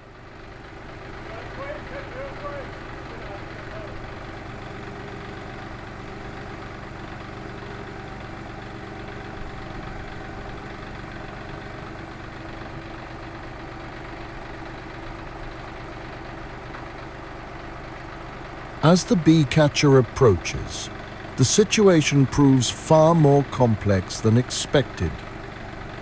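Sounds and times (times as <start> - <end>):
engine humming at idle: 0.0 - 18.8.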